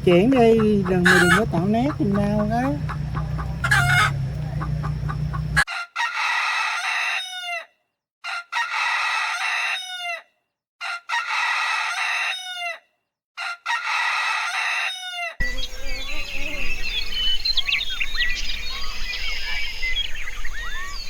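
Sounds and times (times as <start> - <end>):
rooster crowing: 0.0 - 10.2, 10.8 - 12.8, 13.4 - 17.6.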